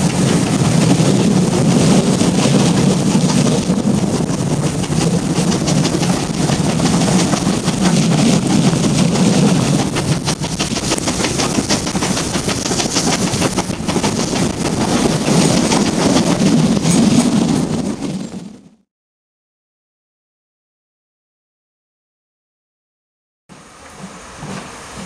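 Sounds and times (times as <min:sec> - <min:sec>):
wind buffeting microphone: 0:00.0 - 0:18.8
train rumbling on track: 0:00.0 - 0:18.9, 0:23.5 - 0:25.0.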